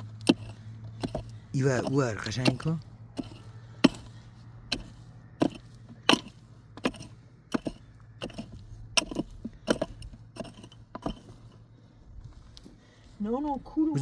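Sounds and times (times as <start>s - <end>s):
hand tool striking hard surface: 0.0s - 11.5s.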